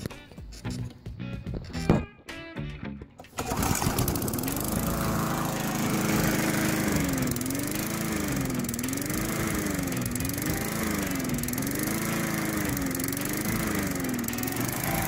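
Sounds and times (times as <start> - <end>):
lawnmower engine surging: 3.2 - 15.0.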